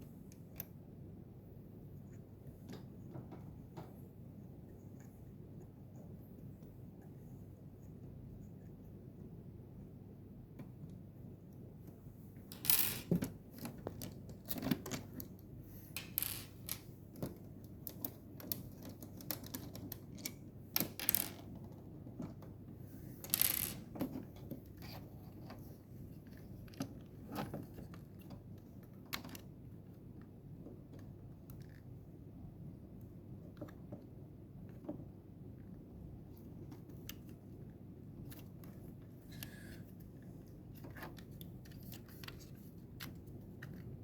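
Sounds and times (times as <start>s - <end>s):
low steady hum: 0.0s - 44.0s
hands handling small plastic parts: 12.4s - 22.5s.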